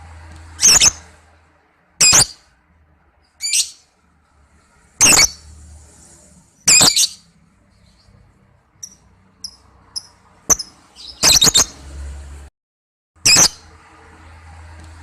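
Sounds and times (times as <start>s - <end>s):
lovebirds screeching: 0.6s - 1.1s, 2.0s - 2.4s, 3.4s - 3.9s, 5.0s - 5.4s, 6.7s - 8.0s, 8.8s - 11.8s.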